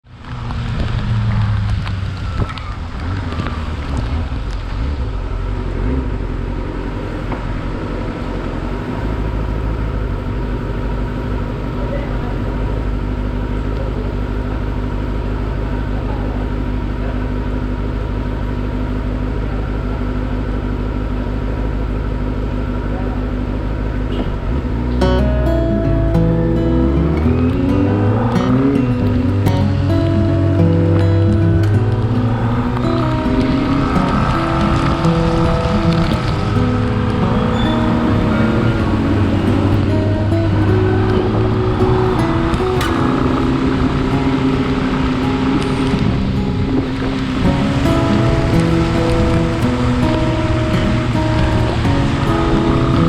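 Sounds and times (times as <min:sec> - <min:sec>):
motorcycle engine cruising: 0:00.0 - 0:53.0
tyres on wet road: 0:00.0 - 0:53.0
wind noise on microphone: 0:26.8 - 0:53.0.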